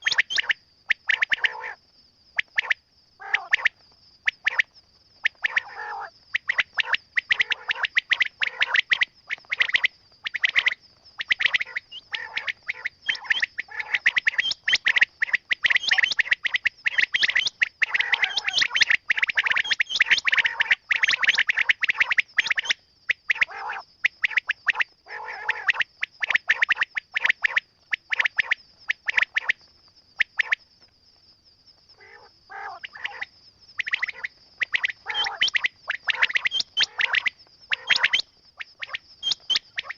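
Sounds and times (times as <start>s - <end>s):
quail chirping: 0.0s - 1.7s, 5.3s - 22.7s, 32.0s - 39.9s.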